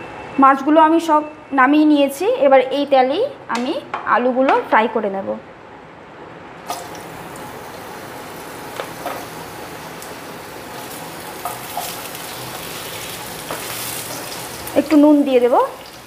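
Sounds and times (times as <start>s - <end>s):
potatoes sizzling in oil: 6.7s - 16.0s.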